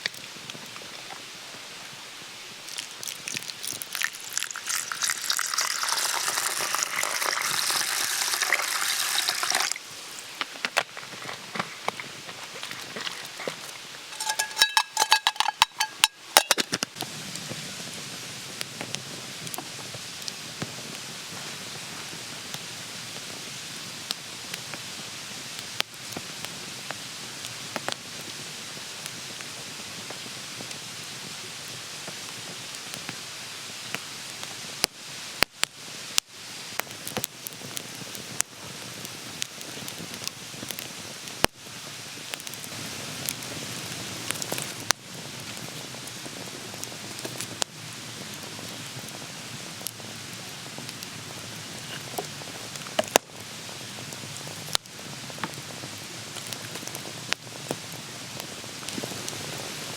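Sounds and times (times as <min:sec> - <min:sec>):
food sizzling in a pan: 0:00.0 - 0:59.9
ringing metal clinks: 0:14.2 - 0:16.6.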